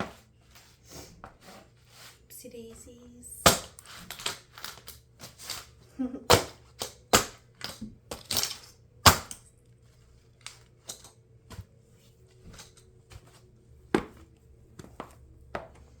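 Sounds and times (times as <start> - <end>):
plastic toy cracking and snapping: 6.3 - 9.4.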